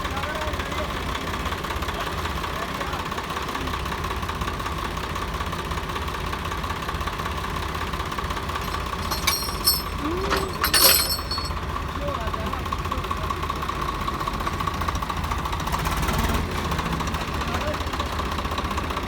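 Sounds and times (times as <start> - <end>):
tractor diesel engine idling: 0.0 - 9.0, 11.5 - 16.0, 17.0 - 19.0
sharp metallic clanks: 8.6 - 11.6.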